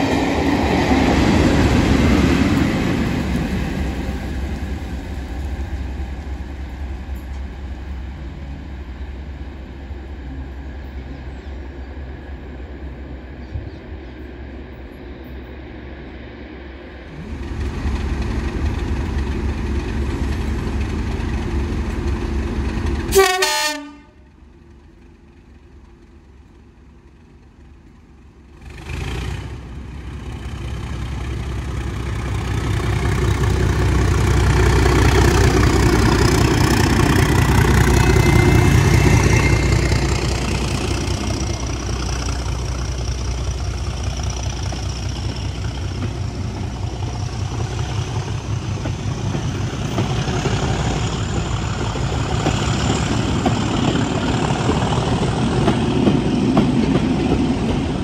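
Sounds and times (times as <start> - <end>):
diesel locomotive engine rumble: 0.0 - 58.0
sharp horn blast: 23.1 - 24.2.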